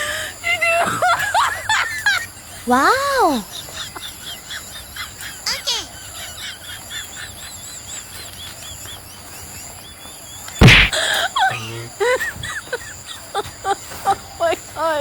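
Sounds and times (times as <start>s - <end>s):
quick high chirps: 10.6s - 11.0s
sudden loud hit: 10.6s - 11.0s.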